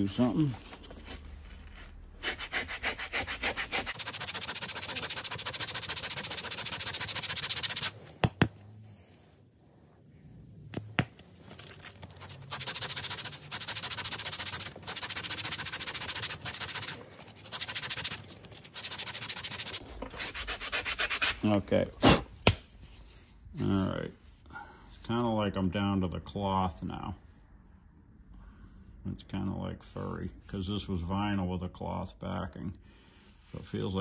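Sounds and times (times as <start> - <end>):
sandpaper scrubbing vinyl: 0.0 - 8.0, 12.0 - 21.6.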